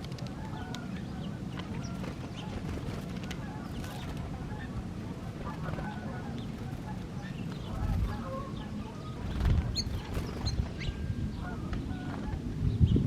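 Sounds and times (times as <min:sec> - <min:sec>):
small birds chirping: 0:00.0 - 0:13.0
steady low rumble: 0:00.0 - 0:13.0.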